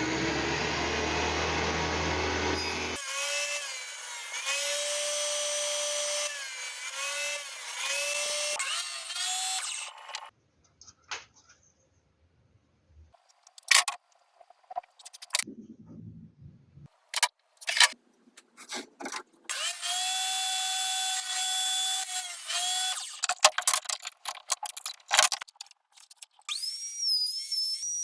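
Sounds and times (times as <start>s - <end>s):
small electric drill running: 0.0s - 10.3s, 19.5s - 23.3s
tools and wood clicking: 13.2s - 15.5s, 17.1s - 19.7s, 22.5s - 26.9s.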